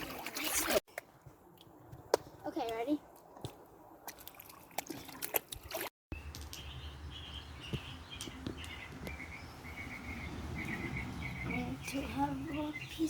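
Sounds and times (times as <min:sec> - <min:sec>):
small birds chirping: 0:06.1 - 0:13.0.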